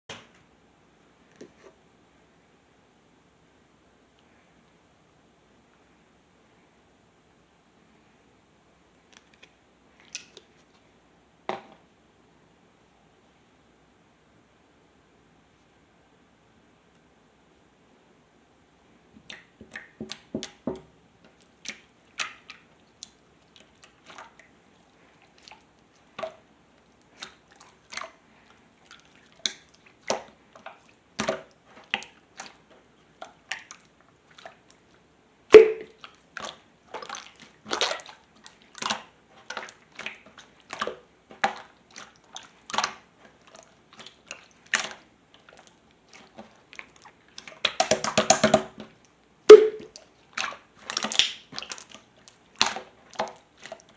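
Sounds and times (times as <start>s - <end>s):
hands squishing slime: 35.6s - 48.9s, 49.5s - 53.9s
wet clicks and sticky pops: 47.4s - 48.9s, 50.4s - 52.0s.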